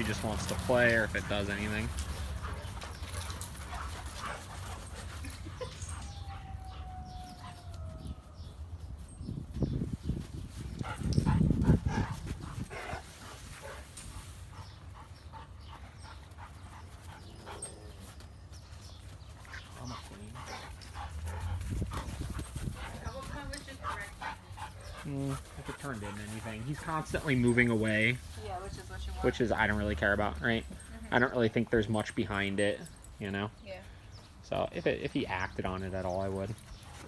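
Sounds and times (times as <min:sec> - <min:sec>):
dogs scuffling: 0:00.0 - 0:33.2, 0:35.2 - 0:37.0
dog whining: 0:05.4 - 0:08.5.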